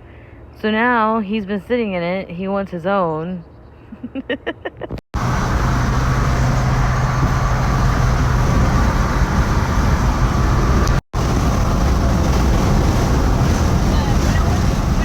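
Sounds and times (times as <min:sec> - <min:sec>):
low engine drone: 0:05.2 - 0:15.0
rushing road noise: 0:05.2 - 0:15.0.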